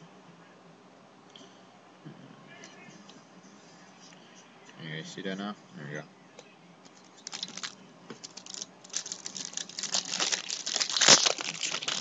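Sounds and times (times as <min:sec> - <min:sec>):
cards rustling and flicking: 0:07.2 - 0:12.0.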